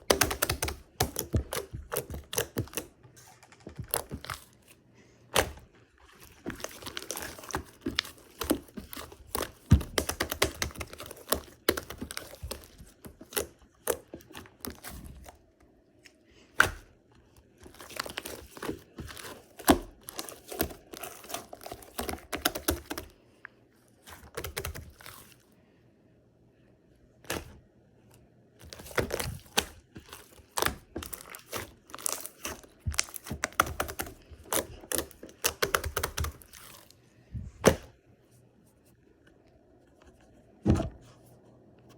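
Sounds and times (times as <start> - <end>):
hands squishing slime: 0.0 - 15.4, 17.6 - 23.2, 24.0 - 25.4, 28.6 - 37.9.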